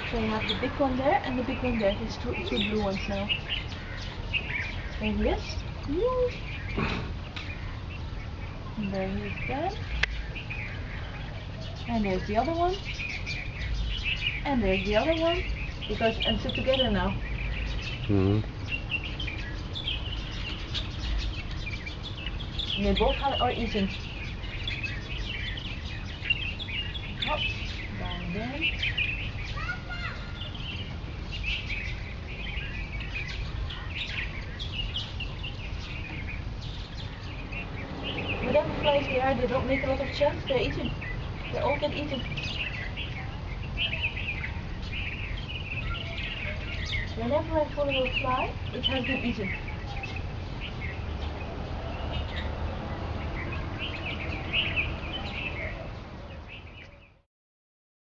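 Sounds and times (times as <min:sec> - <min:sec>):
flock of birds chirping: 0:00.0 - 0:57.2.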